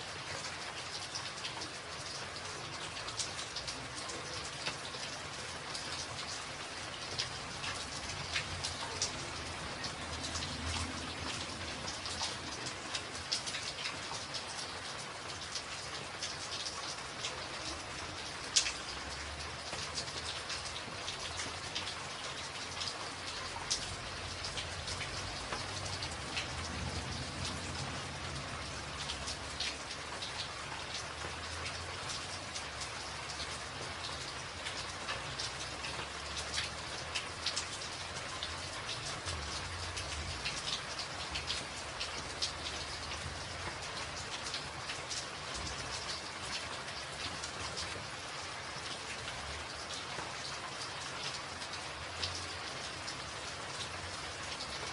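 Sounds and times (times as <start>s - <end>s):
rain drumming on a tin roof: 0.0s - 54.9s.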